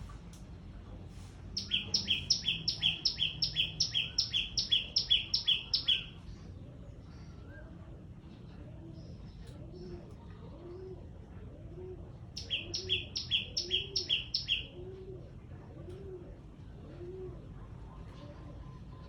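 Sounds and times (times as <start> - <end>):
dove cooing: 1.6 - 6.1, 9.5 - 18.9
small bird sharp notes: 1.6 - 6.2.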